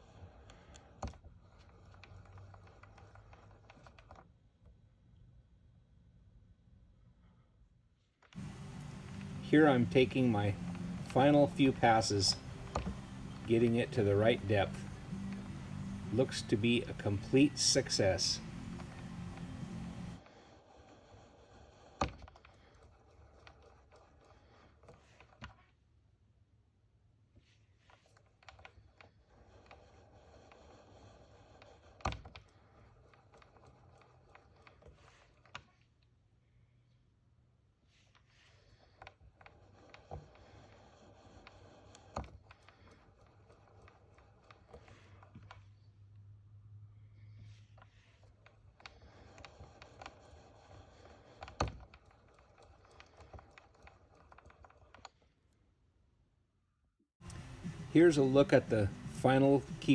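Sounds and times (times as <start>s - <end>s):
light clicks and taps: 8.3s - 20.2s
faint low hum: 8.4s - 20.2s.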